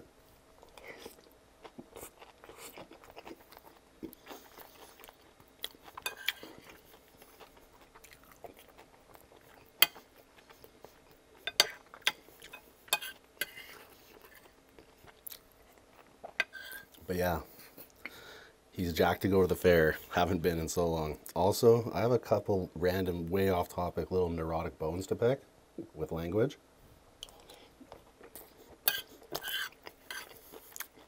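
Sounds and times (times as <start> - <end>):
person chewing food: 0.6 - 18.2, 27.2 - 31.0.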